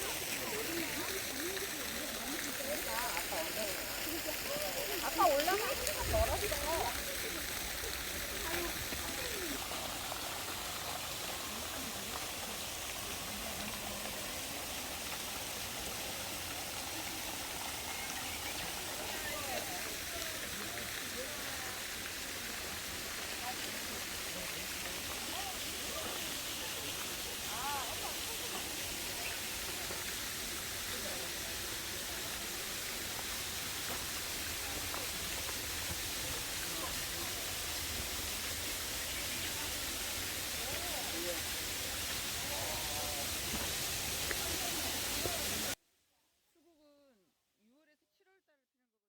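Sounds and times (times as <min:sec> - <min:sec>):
faint voices: 0:00.0 - 0:45.8
outdoor hiss: 0:00.0 - 0:45.8
running water rushing: 0:00.0 - 0:45.8.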